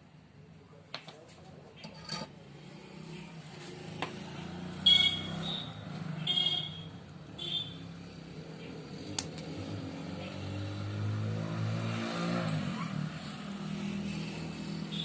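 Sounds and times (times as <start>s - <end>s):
vehicle engine passing by: 2.4s - 6.3s, 7.8s - 14.9s.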